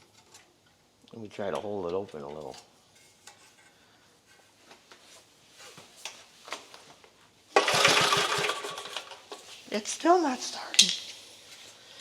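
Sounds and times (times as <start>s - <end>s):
engine cranking whirr: 7.6s - 9.4s.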